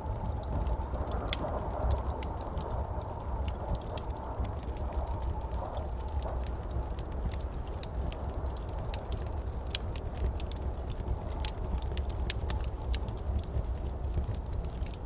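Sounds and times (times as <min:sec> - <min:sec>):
low fire rumble: 0:00.0 - 0:15.0
wood fire crackling in fireplace: 0:00.0 - 0:15.0.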